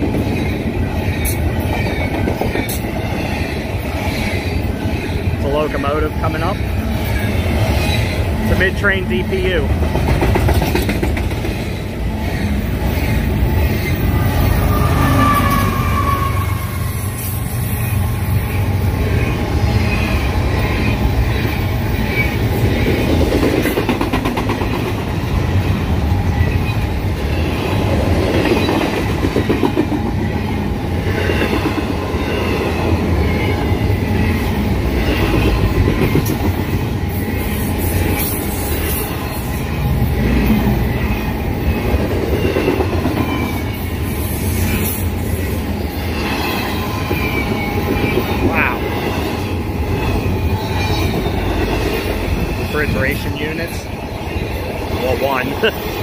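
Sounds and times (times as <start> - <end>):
wheels clacking over rail joints: 0.0 - 14.8, 19.0 - 36.9
freight train cars rumbling past: 0.0 - 56.0.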